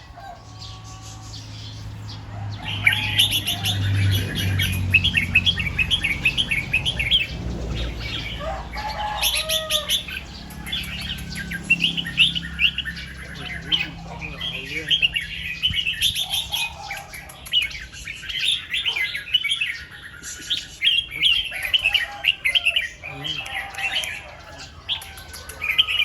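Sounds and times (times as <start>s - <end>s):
bulbul singing: 0.0s - 26.0s.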